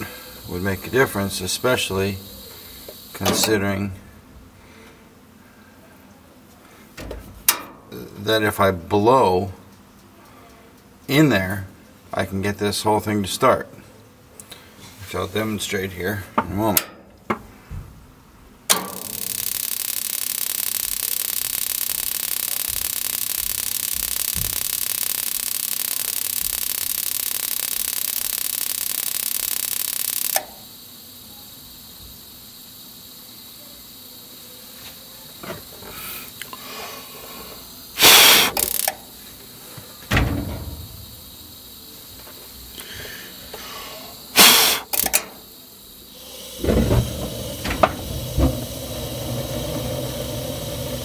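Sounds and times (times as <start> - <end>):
loud steady hiss: 0.0 - 6.2, 18.6 - 51.0
breath puffs into burner: 35.8 - 38.8, 42.7 - 45.0, 46.2 - 51.0.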